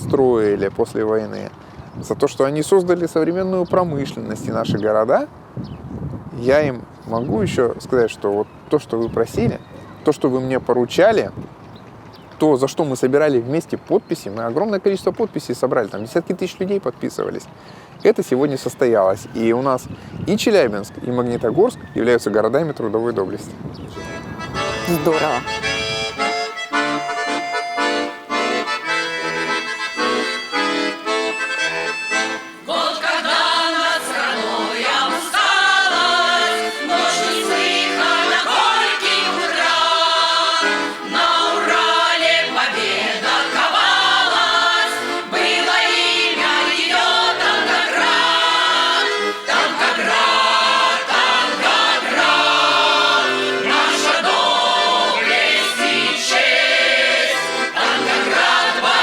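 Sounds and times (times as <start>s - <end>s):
accordion playing: 23.9s - 59.0s
voices singing: 24.0s - 59.0s.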